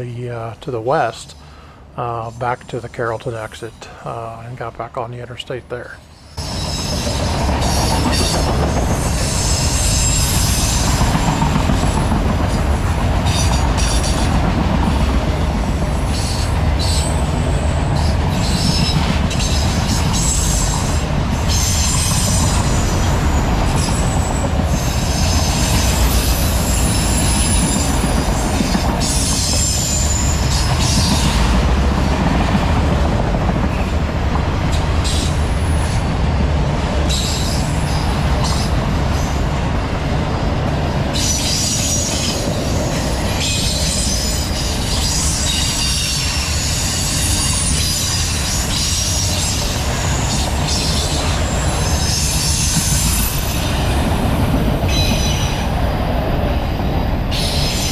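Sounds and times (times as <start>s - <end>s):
freight train rumbling: 0.0s - 57.9s
train wheels squealing: 6.1s - 12.6s, 13.3s - 14.4s, 16.0s - 31.5s, 35.0s - 36.0s, 37.1s - 39.5s, 41.1s - 55.8s, 57.3s - 57.9s.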